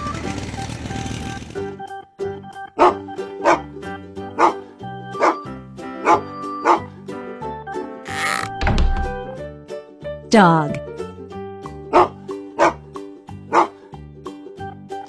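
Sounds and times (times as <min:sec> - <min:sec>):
cheerful children's music: 0:01.6 - 0:15.0
dog barking: 0:02.8 - 0:03.7, 0:04.4 - 0:04.6, 0:05.2 - 0:06.9, 0:11.9 - 0:12.8, 0:13.5 - 0:13.8.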